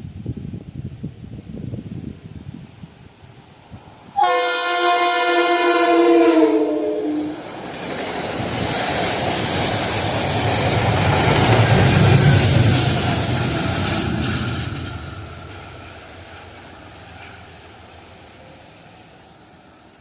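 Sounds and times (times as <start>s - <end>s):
train running past: 3.2s - 20.0s
train horn chord: 4.2s - 7.4s.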